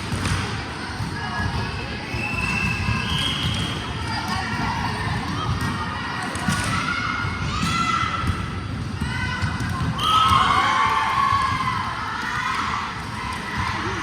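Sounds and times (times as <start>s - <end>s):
volleyballs thudding: 2.4s - 14.0s.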